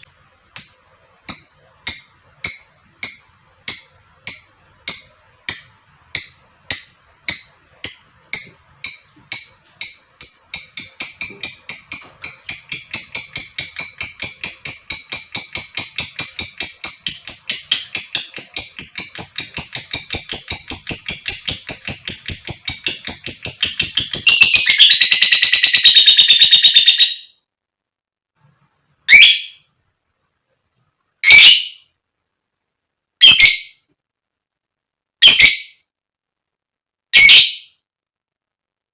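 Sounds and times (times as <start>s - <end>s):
lovebird chattering trill: 0.6s - 27.3s
lovebird squawks: 10.7s - 27.3s, 29.1s - 29.7s, 31.2s - 31.9s, 33.2s - 33.8s, 35.2s - 35.8s, 37.2s - 37.8s.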